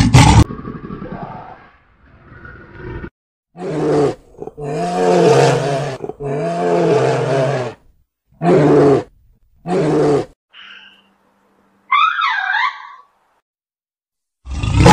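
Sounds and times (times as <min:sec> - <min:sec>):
large animal roaring: 0:00.0 - 0:07.8, 0:08.4 - 0:10.4, 0:14.4 - 0:14.9.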